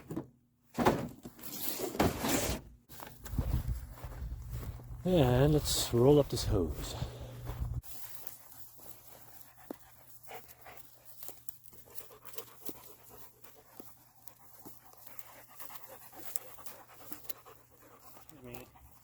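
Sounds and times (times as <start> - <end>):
dog panting: 6.9 - 19.0.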